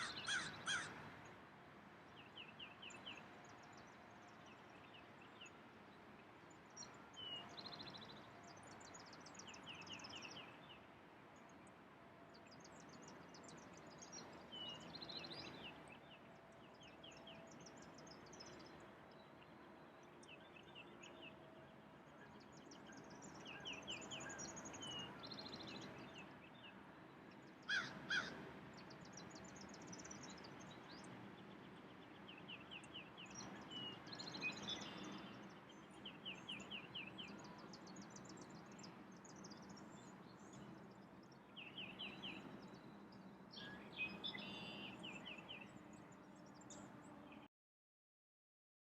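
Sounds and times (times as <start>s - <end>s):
harsh bird calls: 0.0s - 1.2s, 27.7s - 28.4s
songbirds singing: 0.0s - 47.5s.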